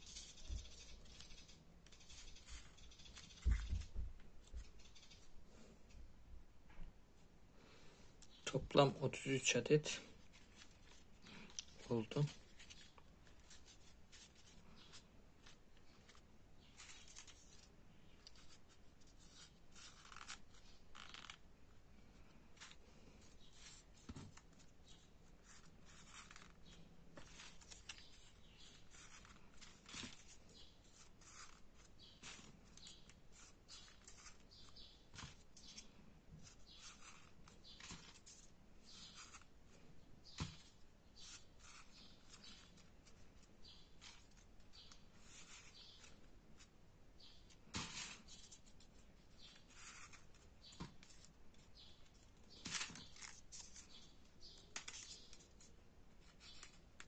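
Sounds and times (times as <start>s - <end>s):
folded paper rustling: 10.0s - 21.4s, 22.6s - 39.5s, 47.5s - 57.0s.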